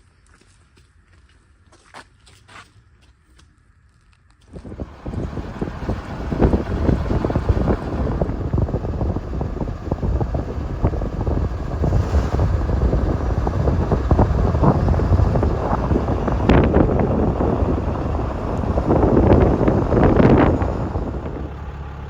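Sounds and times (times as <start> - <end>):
moving vehicle rumble: 4.5 - 22.0
wind buffeting microphone: 4.5 - 22.0.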